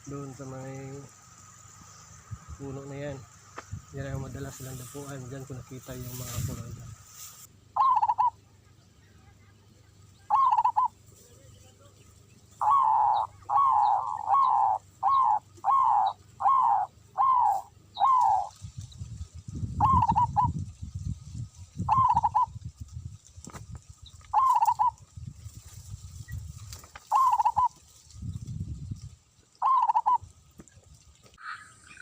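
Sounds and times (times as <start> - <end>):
wind rumble on microphone: 2.0 - 7.5, 17.6 - 31.4
bird calling harshly: 5.9 - 8.4, 10.2 - 11.0, 12.5 - 18.6, 19.7 - 20.6, 21.8 - 22.6, 24.3 - 25.0, 27.0 - 27.8, 29.6 - 30.3.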